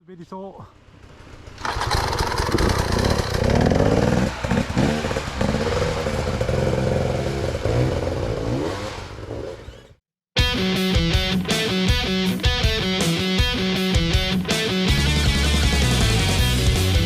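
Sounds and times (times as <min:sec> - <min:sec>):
dirt bike engine revving: 0:00.8 - 0:10.0
rattling and clatter: 0:00.9 - 0:08.1
guitar music: 0:10.4 - 0:17.0.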